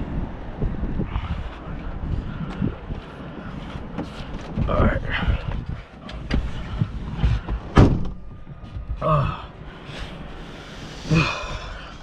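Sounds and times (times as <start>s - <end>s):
person grunting: 9.0s - 9.6s, 11.0s - 12.0s.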